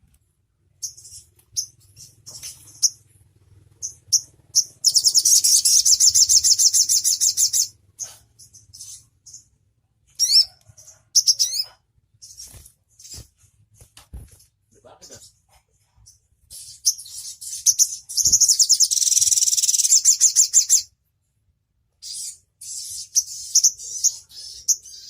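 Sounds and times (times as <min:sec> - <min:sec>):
songbird chirping and trilling: 0:00.7 - 0:13.5, 0:14.8 - 0:21.0, 0:21.9 - 0:25.0.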